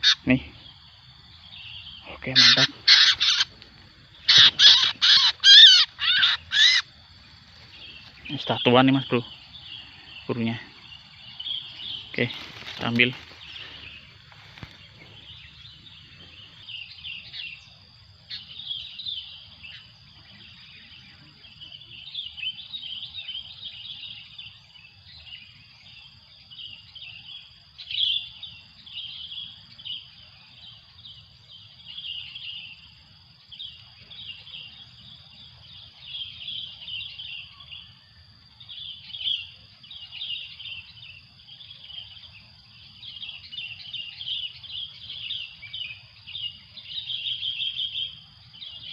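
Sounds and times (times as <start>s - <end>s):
insect drone: 0.0s - 48.9s
small birds chirping: 0.0s - 48.9s.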